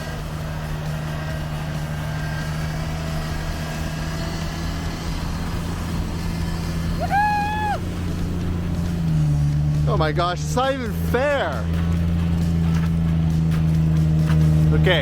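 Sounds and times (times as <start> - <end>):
truck engine running: 0.0 - 15.0
person exclaiming: 7.0 - 7.8.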